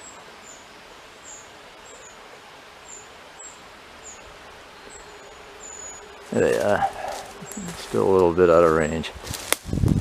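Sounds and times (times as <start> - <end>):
small birds chirping: 0.0 - 9.0
breeze hiss: 0.0 - 10.0.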